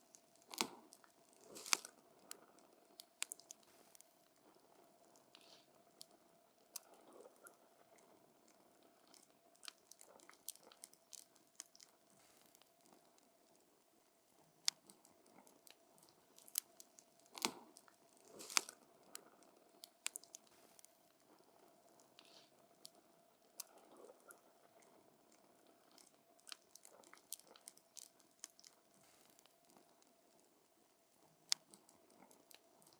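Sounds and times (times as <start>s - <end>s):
faint steady hum: 0.0s - 32.9s
campfire wood crackling and popping: 0.4s - 1.9s, 16.4s - 18.8s.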